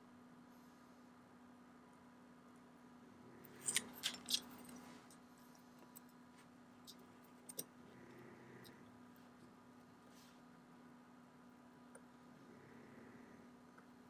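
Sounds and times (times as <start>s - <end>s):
low steady hum: 0.0s - 14.0s
metallic clicks of watch tools: 3.5s - 4.8s, 6.8s - 7.7s.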